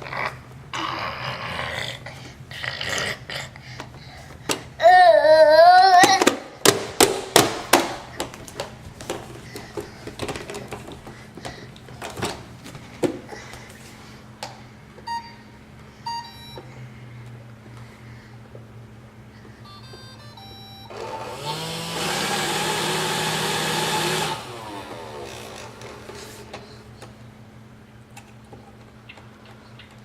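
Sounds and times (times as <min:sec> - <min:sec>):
robot vacuum beeps: 0:19.7 - 0:21.2.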